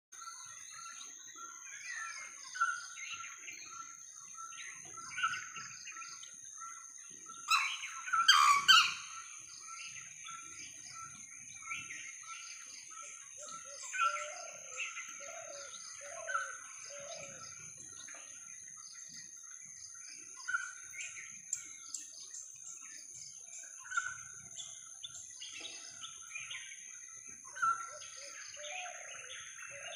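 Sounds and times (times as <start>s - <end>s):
birds chirping and calling: 0.2s - 29.9s
loud harsh bird call: 7.5s - 9.3s.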